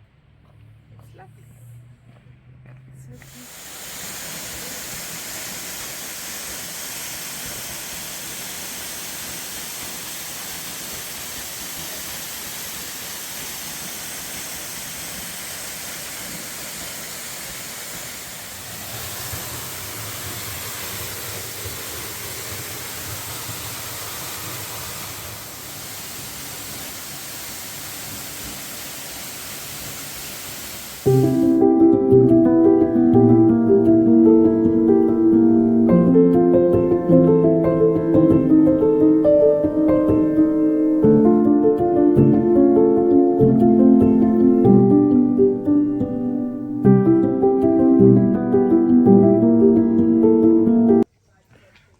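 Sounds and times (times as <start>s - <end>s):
waterfall rushing: 3.3s - 31.7s, 36.3s - 46.3s.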